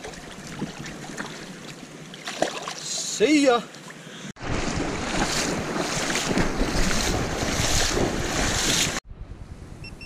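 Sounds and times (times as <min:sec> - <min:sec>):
wind buffeting microphone: 0:04.4 - 0:10.0.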